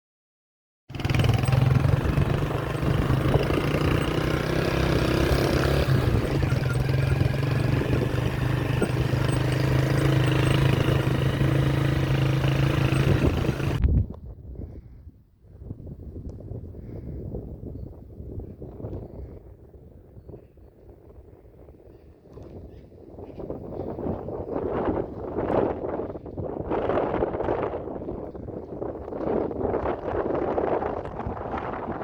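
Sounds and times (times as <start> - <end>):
vehicle engine running: 0.9 - 13.8.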